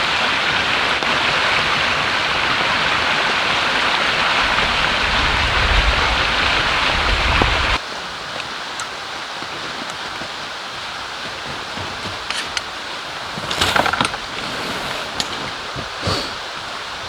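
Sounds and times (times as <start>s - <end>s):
rain: 0.0s - 17.0s
river flowing: 6.2s - 17.0s
rustles and clicks: 8.3s - 16.4s.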